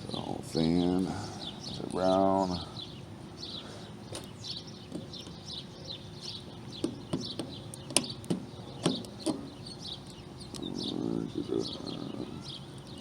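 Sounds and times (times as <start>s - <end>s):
small bird chirping: 0.0s - 13.0s
sharp clicks of wire terminals: 6.8s - 10.7s.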